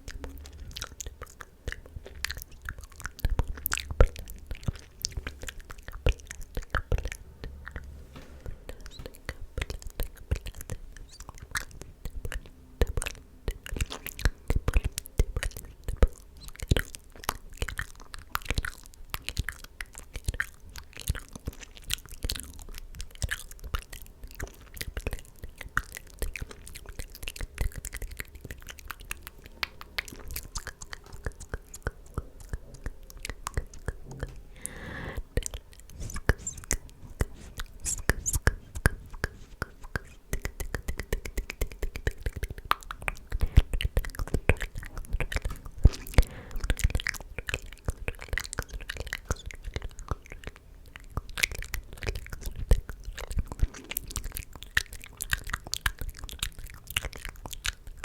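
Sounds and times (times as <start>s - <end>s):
wet mouth clicks and smacks: 0.0s - 7.9s, 8.7s - 58.0s
breathy whisper: 33.8s - 40.2s, 44.6s - 47.1s.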